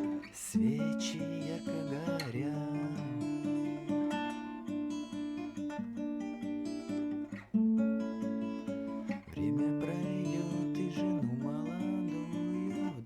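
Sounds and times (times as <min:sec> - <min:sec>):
person singing: 0:00.0 - 0:04.2, 0:09.2 - 0:13.0
acoustic guitar chords: 0:00.0 - 0:13.0.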